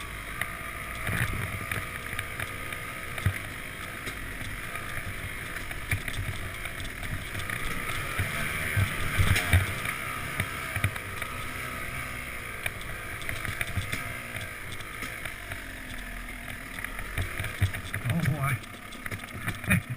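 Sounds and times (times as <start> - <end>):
dirt bike engine running: 0.0 - 19.9.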